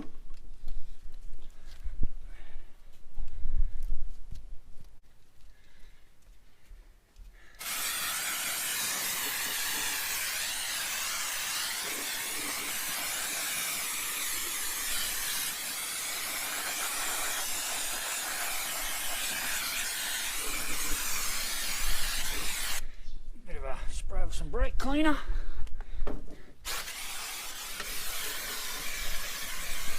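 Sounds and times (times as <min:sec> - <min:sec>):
aerosol can spraying hiss: 0:07.6 - 0:22.8, 0:26.6 - 0:29.9.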